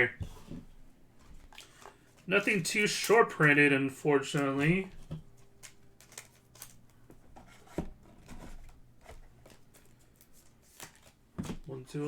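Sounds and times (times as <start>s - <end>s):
cards clicking and rustling: 1.2s - 11.7s.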